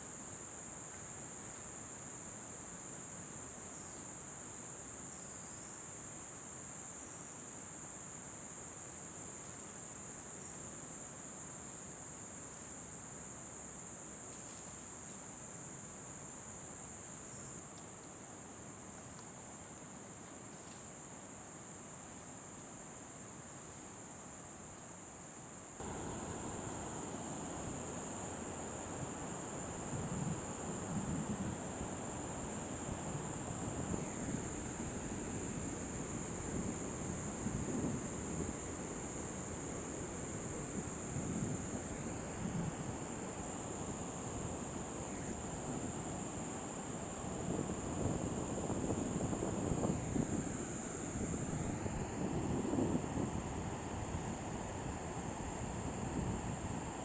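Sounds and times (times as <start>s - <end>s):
insect chorus drone: 0.0s - 57.0s
soft outdoor rustle: 9.2s - 57.0s
low wind noise: 25.8s - 57.0s.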